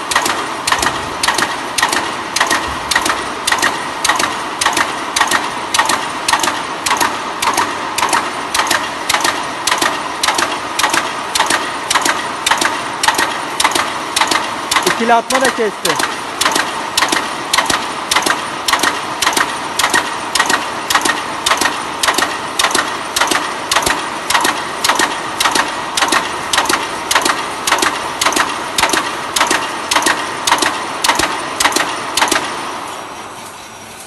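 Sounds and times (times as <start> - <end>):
steady machine background: 0.0 - 34.0
welding machine clacking: 0.0 - 34.0.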